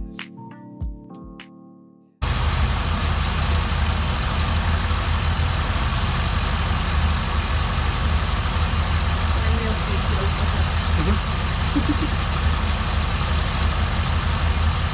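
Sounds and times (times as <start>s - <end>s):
background music: 0.0s - 2.1s
car engine idling: 2.2s - 14.9s.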